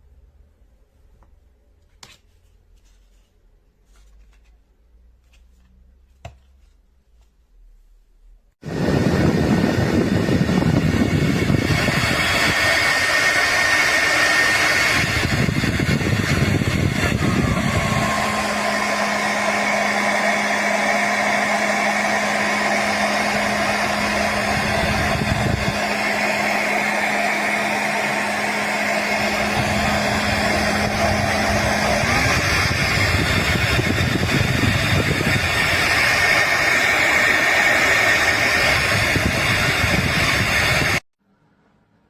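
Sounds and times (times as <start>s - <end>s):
hair dryer running: 8.6s - 41.1s.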